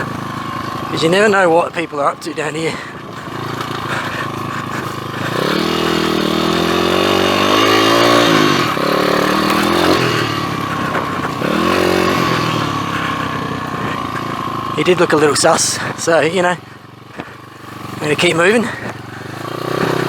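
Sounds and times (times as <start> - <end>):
pit bike engine revving: 0.0 - 20.0.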